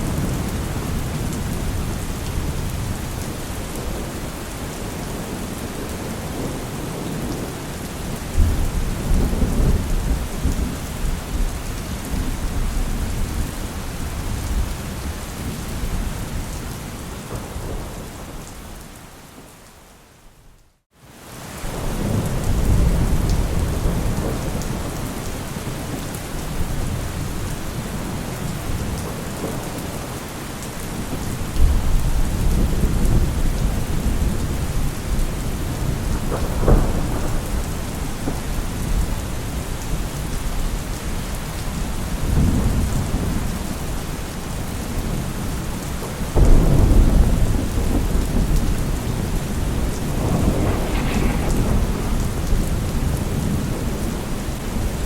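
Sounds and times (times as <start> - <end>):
heavy rain falling: 0.0 - 55.0
thunder rumbling: 31.1 - 39.7, 46.2 - 55.0
sharp thunderclap: 35.8 - 39.0, 46.4 - 54.9.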